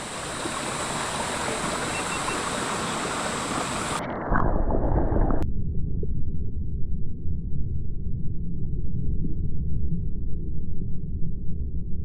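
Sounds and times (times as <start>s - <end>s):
creek water rushing: 0.0s - 4.2s
water churning underwater: 0.0s - 5.4s.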